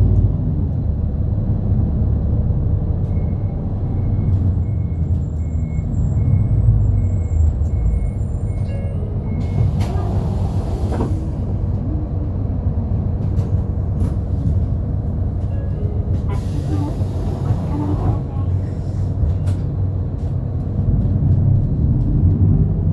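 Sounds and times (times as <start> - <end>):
bus engine and road rumble: 0.0 - 22.9.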